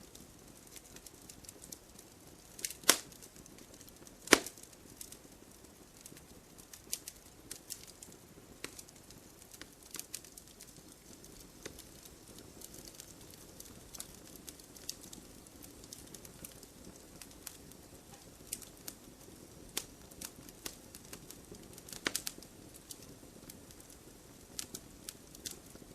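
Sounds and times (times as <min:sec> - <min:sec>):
campfire crackling and popping: 0:00.0 - 0:25.9
soft hiss of flames: 0:00.0 - 0:25.9.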